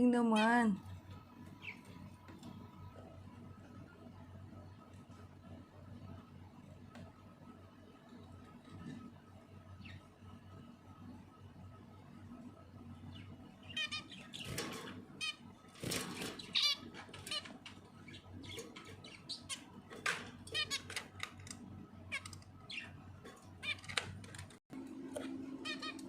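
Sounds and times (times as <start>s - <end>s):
small birds chirping: 0.0s - 3.9s, 12.9s - 24.6s, 25.6s - 26.0s
rustling and fluttering: 14.3s - 21.7s.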